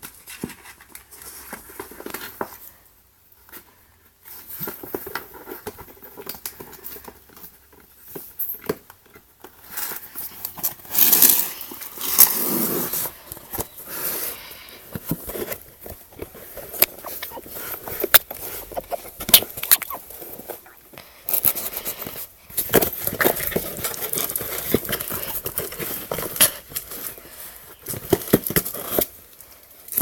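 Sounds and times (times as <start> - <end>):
cat claws scratching cardboard: 14.9 - 20.7.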